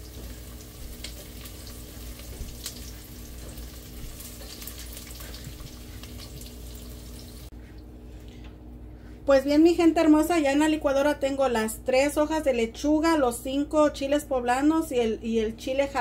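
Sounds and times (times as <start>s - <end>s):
onion and garlic sizzling: 0.0s - 7.5s.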